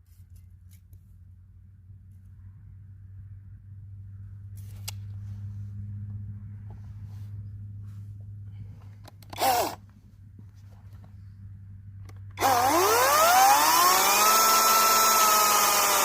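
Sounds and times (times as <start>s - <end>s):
steady low hum: 0.0s - 15.2s
cordless chainsaw motor burst: 9.3s - 9.8s, 12.4s - 16.0s.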